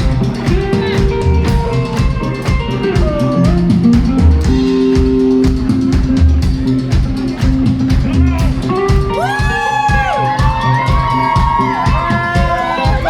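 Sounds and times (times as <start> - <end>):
electric guitar sliding notes: 0.0 - 11.2
pounding drum kit: 0.0 - 13.0.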